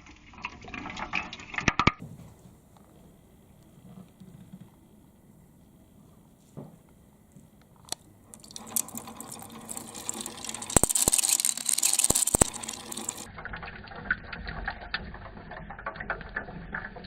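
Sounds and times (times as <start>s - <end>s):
balls clicking against track: 8.3s - 13.3s
water running down marble run: 8.4s - 17.0s.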